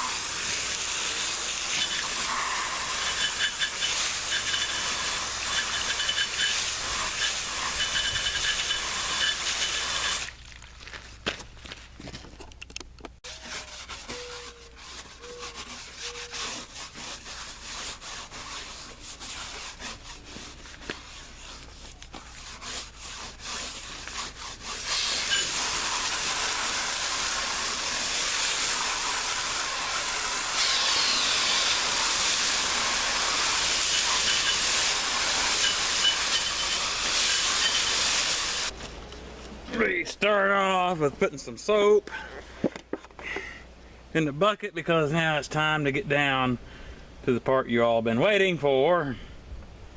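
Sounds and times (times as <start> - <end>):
garden hose water hissing: 0.0 - 10.8, 22.4 - 38.8
rubbing and scraping: 0.0 - 12.6, 13.2 - 39.0.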